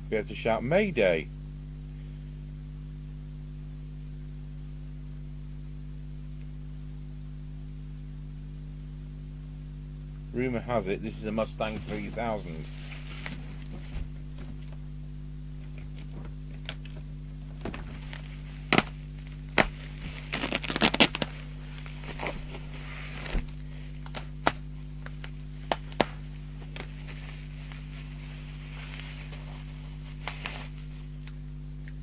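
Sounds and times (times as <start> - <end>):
low electrical hum: 0.0 - 32.0
packaging crinkling and rattling: 19.6 - 21.3.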